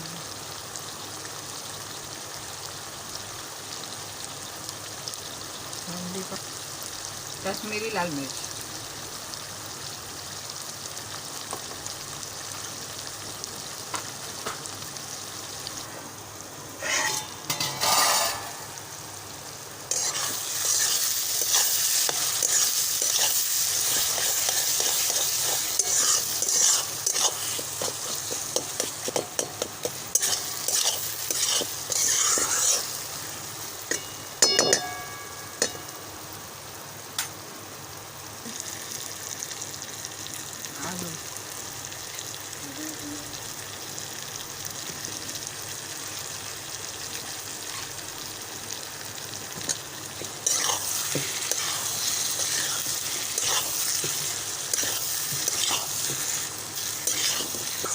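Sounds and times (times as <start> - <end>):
spices sizzling in a pan: 0.0 - 57.9
spoon stirring and scraping pan: 16.8 - 18.8, 19.9 - 35.9, 49.6 - 57.9
ringing metal clink: 33.9 - 35.9.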